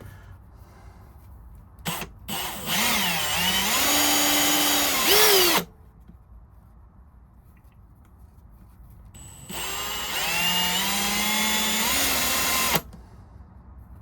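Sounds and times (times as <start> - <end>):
power drill motor whine: 1.9 - 5.6, 9.2 - 12.9.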